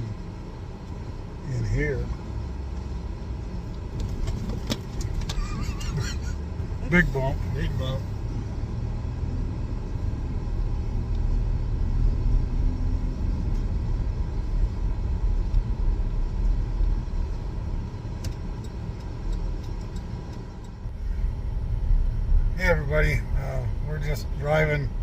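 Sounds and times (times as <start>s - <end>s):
car interior road and engine rumble: 0.0s - 25.0s.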